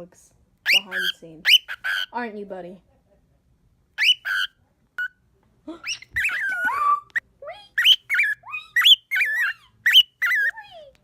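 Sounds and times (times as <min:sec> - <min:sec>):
pet bird chirps and squawks: 0:00.6 - 0:02.2, 0:04.0 - 0:05.2, 0:05.8 - 0:10.9.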